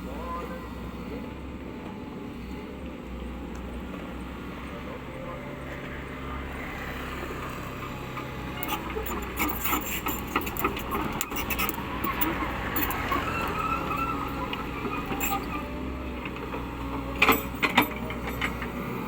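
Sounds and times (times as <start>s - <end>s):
excavator diesel engine running: 0.0s - 19.0s
metallic squeals: 8.5s - 15.9s.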